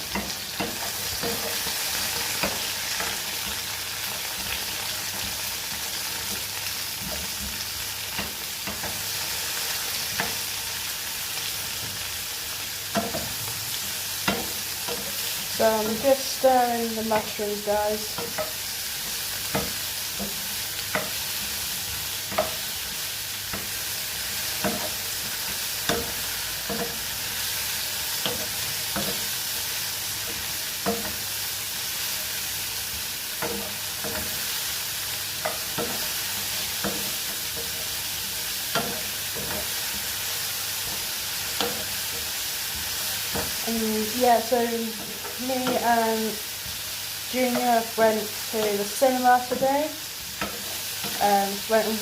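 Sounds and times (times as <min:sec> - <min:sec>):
mushrooms sizzling in a frying pan: 0:00.0 - 0:52.0
spatula scraping a pan: 0:18.0 - 0:52.0.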